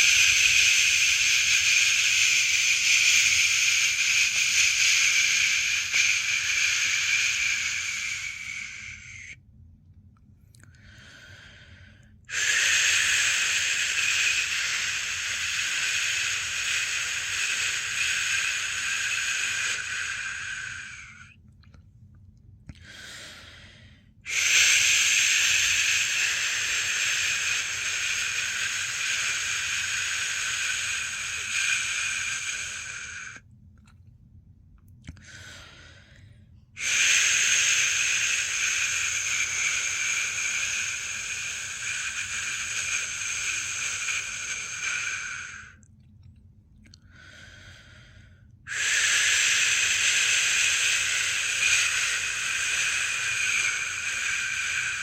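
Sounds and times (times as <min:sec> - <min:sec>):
person shushing: 0:00.0 - 0:09.4, 0:12.3 - 0:21.3, 0:24.3 - 0:33.4, 0:36.8 - 0:45.8, 0:48.7 - 0:55.0.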